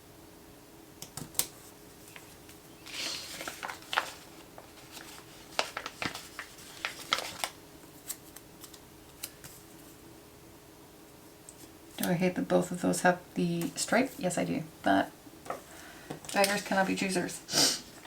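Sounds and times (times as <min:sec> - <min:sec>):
paper rustling: 0:01.4 - 0:10.0.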